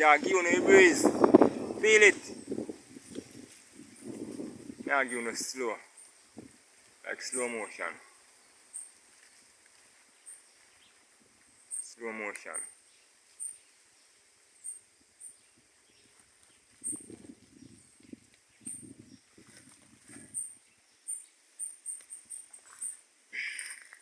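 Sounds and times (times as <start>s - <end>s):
wind rustling on microphone: 0.0s - 7.9s, 8.5s - 11.8s, 14.7s - 21.0s.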